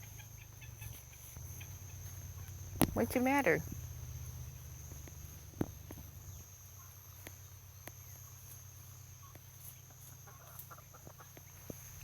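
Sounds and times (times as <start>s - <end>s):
low hum: 0.0s - 9.3s
high-pitched insect drone: 0.0s - 12.0s.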